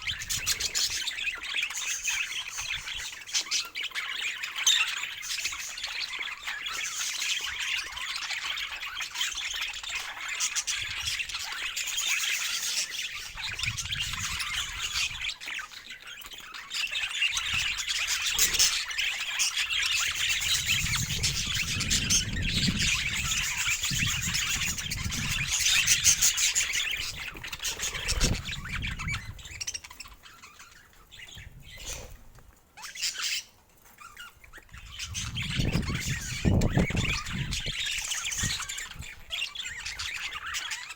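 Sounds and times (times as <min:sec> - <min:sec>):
budgerigars chattering: 0:00.0 - 0:32.2, 0:32.8 - 0:40.9.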